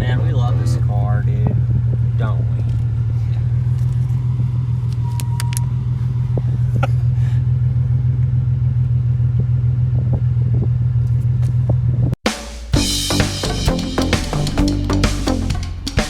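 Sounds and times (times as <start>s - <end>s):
motor idling: 0.0s - 11.1s.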